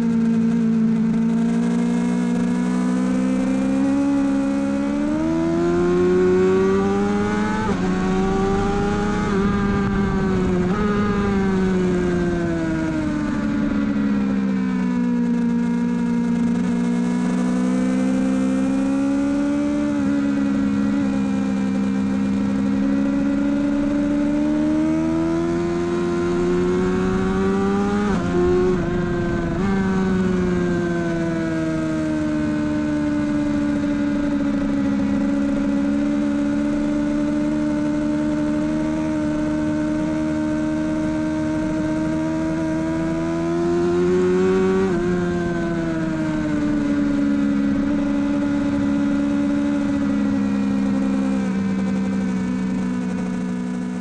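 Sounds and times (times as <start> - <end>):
motorcycle engine revving high: 0.0 - 54.0
wind rush: 7.2 - 14.5.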